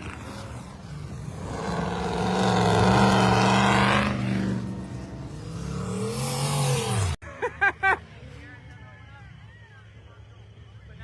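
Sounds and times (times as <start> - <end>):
engine revving hard: 0.0 - 7.2.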